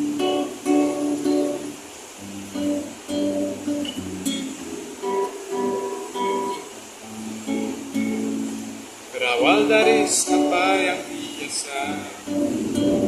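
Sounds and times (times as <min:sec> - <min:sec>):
acoustic guitar strumming chords: 0:00.0 - 0:13.0
person singing: 0:09.1 - 0:13.0.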